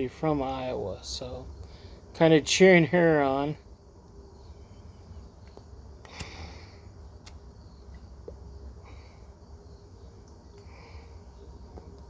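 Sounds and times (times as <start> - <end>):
soft insect chirps: 0.0 - 12.0
short hiss: 6.0 - 7.4.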